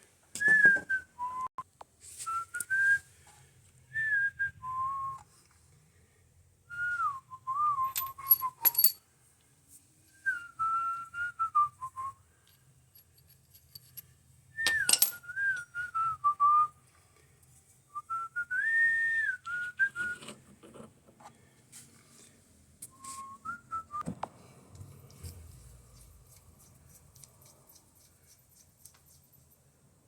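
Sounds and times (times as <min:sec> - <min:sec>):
person whistling a tune: 0:00.4 - 0:01.6, 0:02.3 - 0:03.1, 0:03.9 - 0:05.2, 0:06.7 - 0:08.8, 0:10.2 - 0:12.2, 0:14.6 - 0:16.7, 0:17.9 - 0:20.2, 0:22.9 - 0:24.0.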